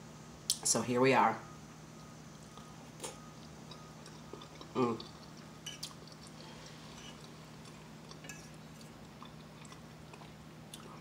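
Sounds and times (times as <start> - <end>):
steady low hum: 0.0 - 11.0
close-up chewing of food: 2.5 - 11.0.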